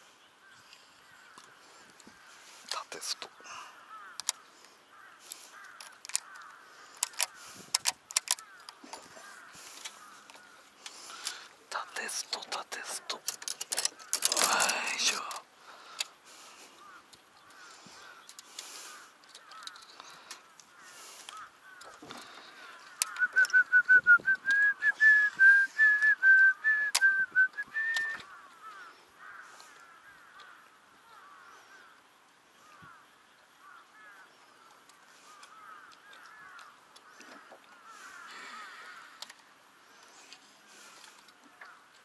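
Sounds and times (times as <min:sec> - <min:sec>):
birds chattering call notes: 0:00.0 - 0:42.0
rapid series of bird notes: 0:09.2 - 0:16.8.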